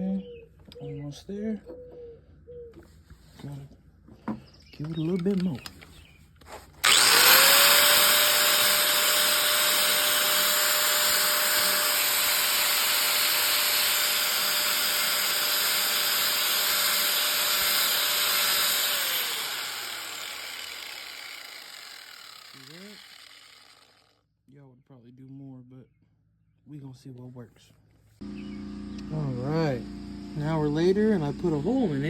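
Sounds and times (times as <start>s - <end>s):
power tool motor whining: 6.8s - 24.2s.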